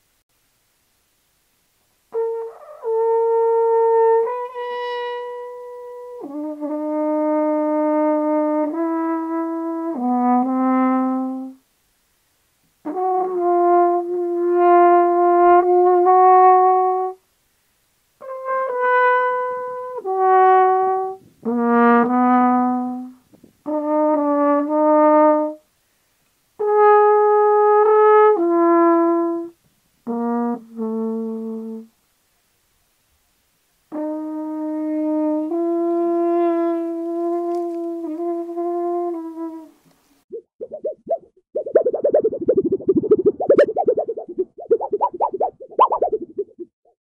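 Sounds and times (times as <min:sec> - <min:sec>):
brass instrument slow melody: 0:02.1 - 0:11.6, 0:12.8 - 0:17.2, 0:18.2 - 0:25.6, 0:26.6 - 0:32.0, 0:33.9 - 0:39.8.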